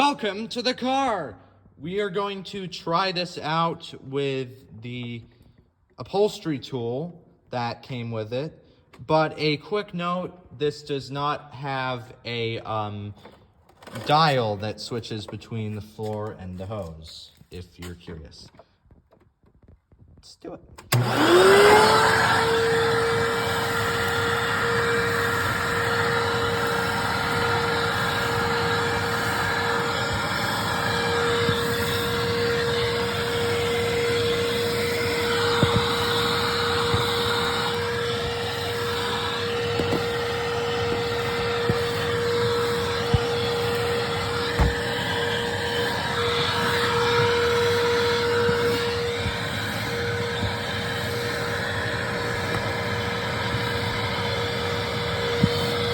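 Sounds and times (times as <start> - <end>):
vacuum cleaner running: 20.8 - 55.9.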